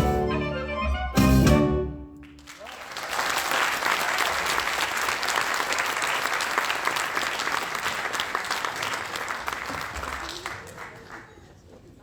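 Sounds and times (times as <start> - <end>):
audience clapping: 2.2 - 11.7.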